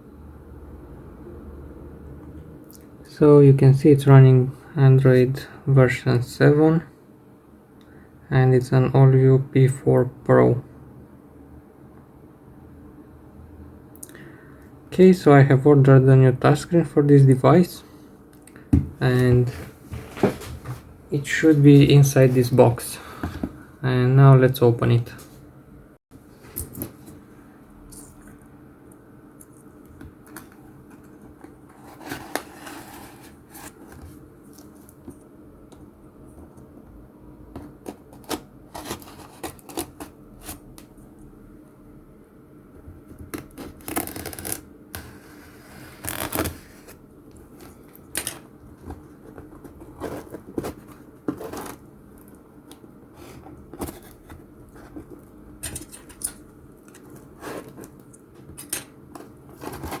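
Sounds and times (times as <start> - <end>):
cardboard packaging rustling: 48.7 - 51.9, 59.2 - 60.0.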